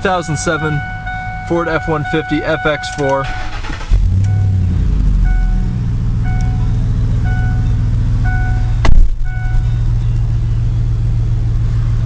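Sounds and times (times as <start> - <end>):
pickup engine idling: 0.0 - 12.0
short beeps: 0.2 - 3.5, 4.2 - 4.6, 5.2 - 9.9
loud sharp thump: 8.8 - 9.3.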